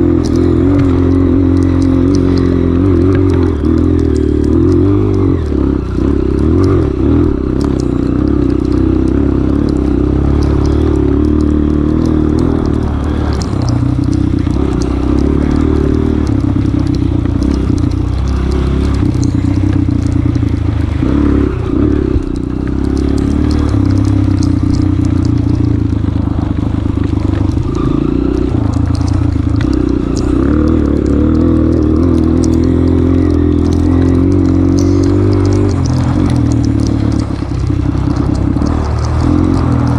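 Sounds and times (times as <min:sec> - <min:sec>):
motorcycle engine under throttle: 0:00.0 - 0:39.9
sharp ticks and clatter: 0:00.0 - 0:39.9.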